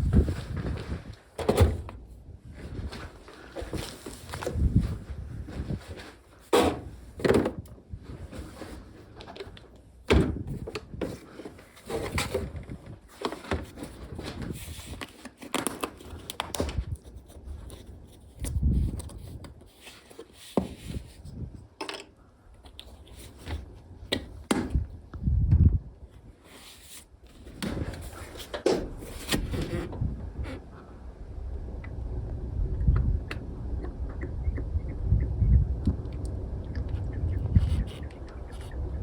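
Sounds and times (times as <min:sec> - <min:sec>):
scraping and rustling: 0:10.5 - 0:21.7, 0:26.2 - 0:30.9.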